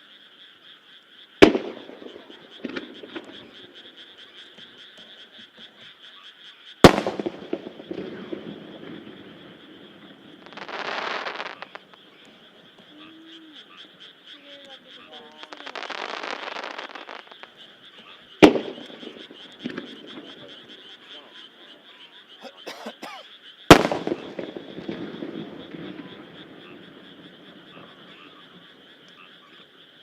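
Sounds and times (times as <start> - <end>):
frogs croaking: 0.0 - 30.0
hissing crackle: 0.5 - 5.8, 6.8 - 21.8, 23.7 - 29.9
firework shells bursting: 1.4 - 4.7, 6.8 - 12.9, 18.4 - 20.8, 23.7 - 27.0.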